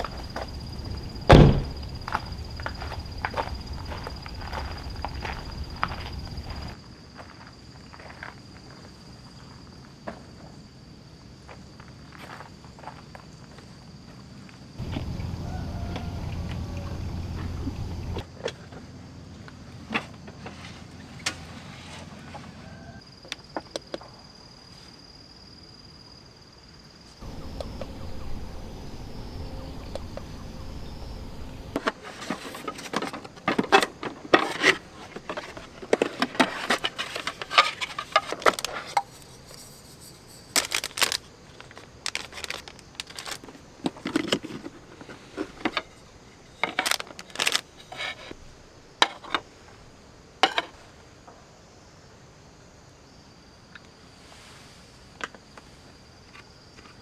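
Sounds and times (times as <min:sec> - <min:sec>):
faint insect hum: 0:00.0 - 0:14.2, 0:14.8 - 0:21.2, 0:21.8 - 0:33.5, 0:34.4 - 0:57.0
low rumble: 0:14.8 - 0:18.2, 0:27.2 - 0:31.8
small hard objects clicking: 0:40.6 - 0:41.2.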